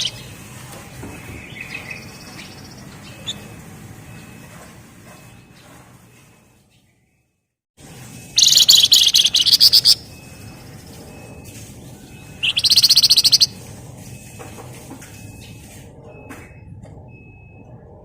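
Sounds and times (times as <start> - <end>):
songbird rattling trill: 0.0 - 0.4, 1.1 - 4.5, 8.4 - 13.6.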